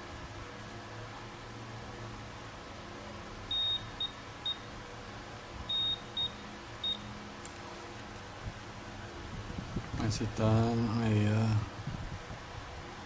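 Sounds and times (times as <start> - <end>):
steady low hum: 0.0 - 13.0
multimeter beeps: 3.5 - 4.7, 5.7 - 7.1.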